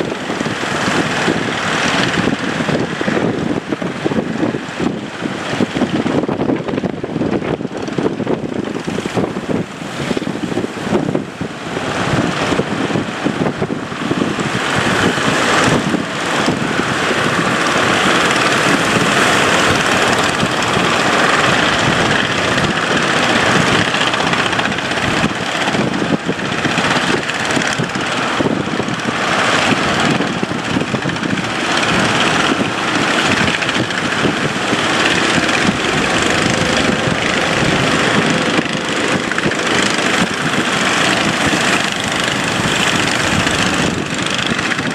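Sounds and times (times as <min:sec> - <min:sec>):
boat engine running: 0:00.0 - 0:44.9
loud rushing noise: 0:00.0 - 0:44.9.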